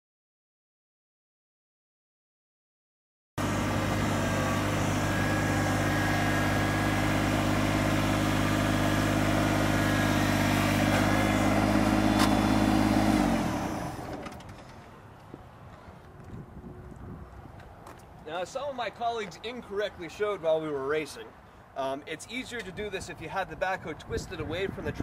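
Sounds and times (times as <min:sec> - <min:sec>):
tractor diesel engine idling: 0:03.4 - 0:14.5.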